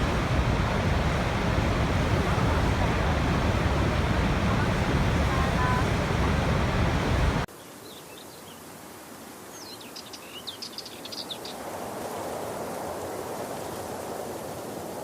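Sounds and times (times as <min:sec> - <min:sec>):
waterfall rushing: 0:00.0 - 0:07.5.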